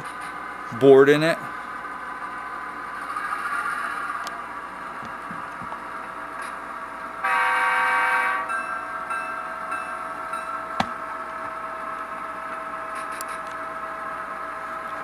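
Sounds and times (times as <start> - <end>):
locomotive horn blast: 7.2 - 8.5.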